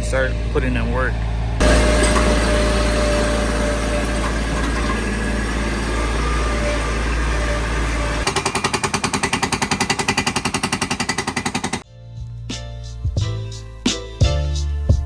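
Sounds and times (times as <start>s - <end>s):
construction machine engine running: 0.0s - 11.8s.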